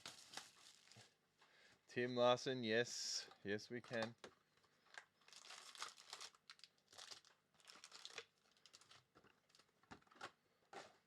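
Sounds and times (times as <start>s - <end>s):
plastic wrapping crinkling and tearing: 0.0s - 1.2s, 4.6s - 11.0s.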